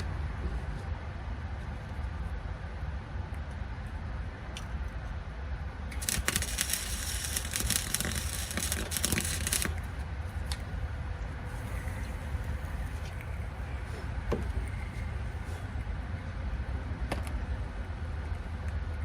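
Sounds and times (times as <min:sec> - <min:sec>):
steady low hum: 0:00.0 - 0:19.0
welding arc crackling: 0:05.9 - 0:10.8.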